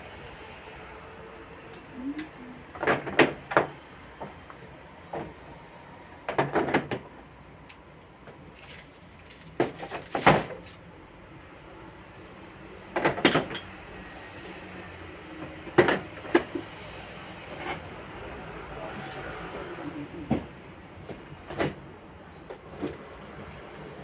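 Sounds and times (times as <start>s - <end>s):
items clattering in refrigerator: 8.5s - 10.8s.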